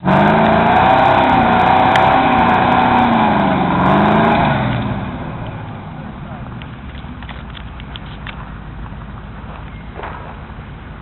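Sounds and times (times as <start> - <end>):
engine revving: 0.0 - 6.8.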